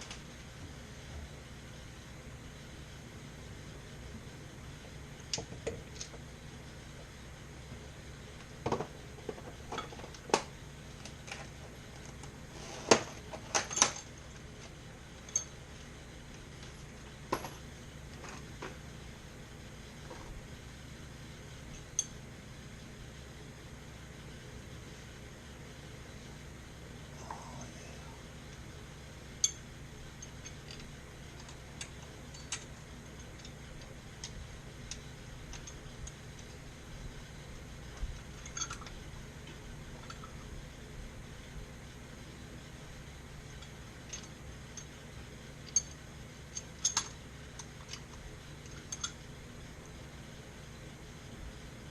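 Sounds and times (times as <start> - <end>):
low steady hum: 0.0 - 51.9
metal tools clinking: 15.3 - 15.6.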